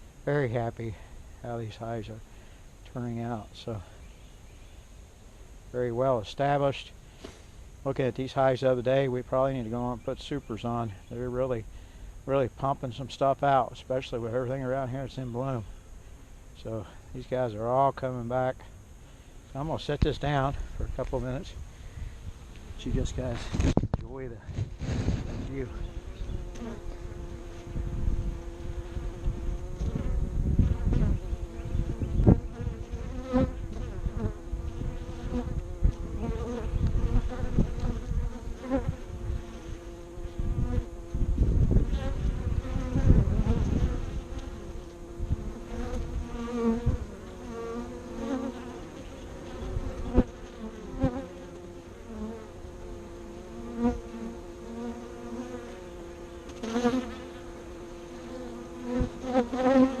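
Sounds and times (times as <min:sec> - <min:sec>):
honeybees buzzing: 0:00.0 - 1:00.0
single bees buzzing past: 0:24.6 - 1:00.0.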